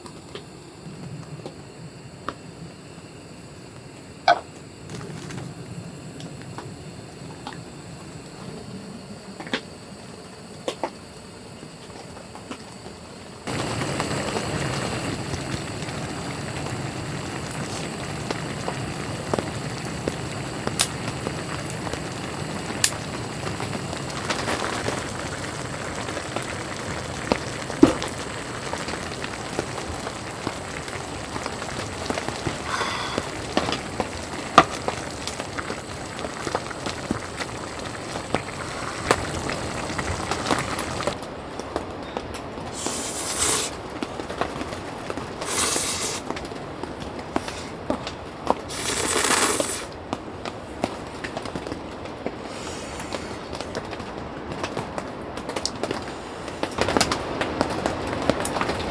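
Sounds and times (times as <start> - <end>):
rain patter: 13.4 - 58.9.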